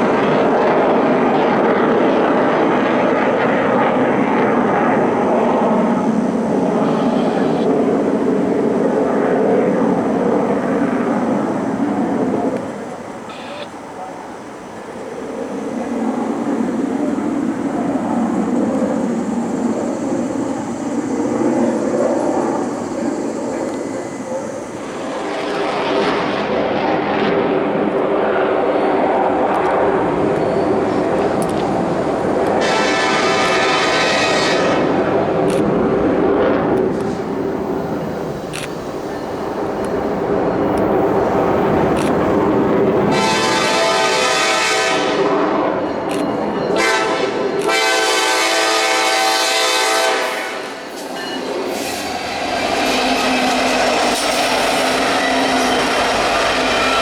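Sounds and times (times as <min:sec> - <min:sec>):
train rumbling past: 0:00.0 - 0:57.0
train horn blasts: 0:32.6 - 0:35.1, 0:43.0 - 0:45.6, 0:46.6 - 0:50.8.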